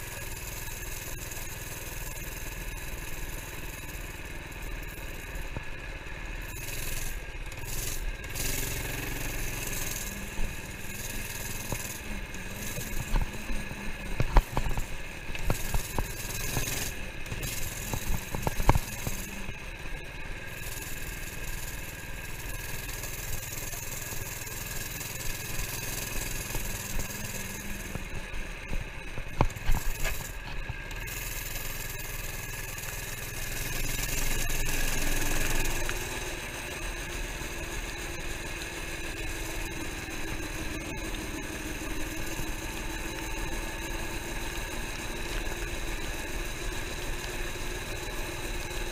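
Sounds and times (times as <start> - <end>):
small minibike engine running: 0.0 - 48.9.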